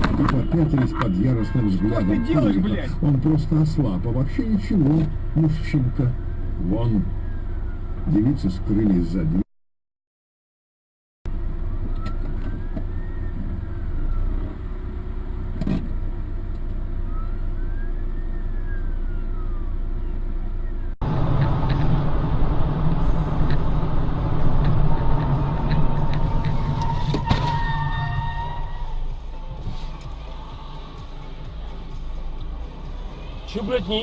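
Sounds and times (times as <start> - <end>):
car engine and road rumble: 0.0 - 9.5, 11.3 - 34.0.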